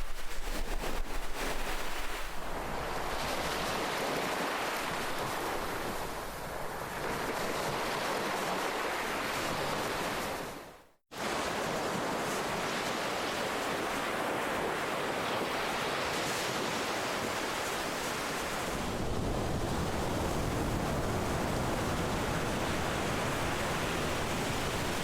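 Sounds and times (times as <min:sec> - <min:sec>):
ocean waves surf: 0:00.0 - 0:25.0.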